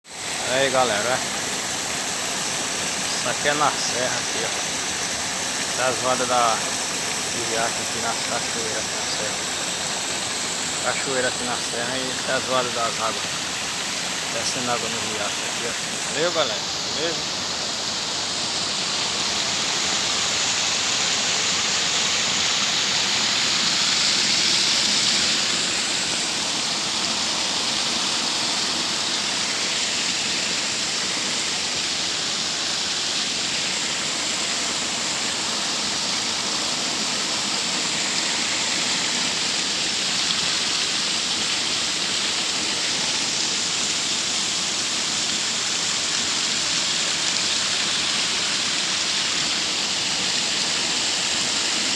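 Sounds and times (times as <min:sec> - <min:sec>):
waterfall and creek rushing: 0:00.0 - 0:51.9.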